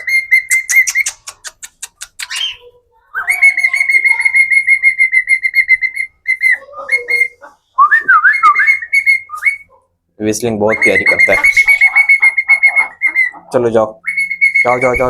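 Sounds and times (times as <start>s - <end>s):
cockatiel chirping and whistling: 0.0s - 1.2s, 2.2s - 9.8s, 10.7s - 15.0s.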